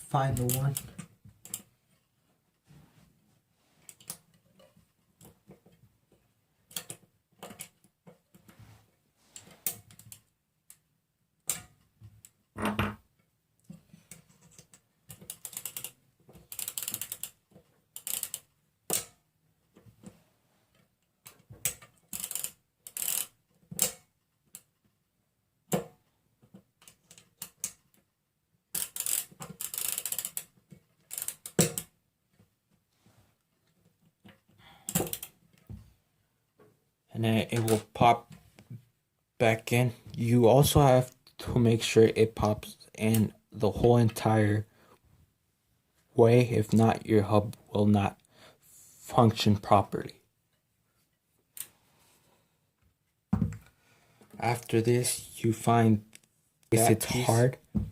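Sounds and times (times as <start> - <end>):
small metal parts clicking: 14.1 - 17.4, 18.0 - 19.1, 21.2 - 24.7, 28.7 - 31.9, 34.2 - 35.3.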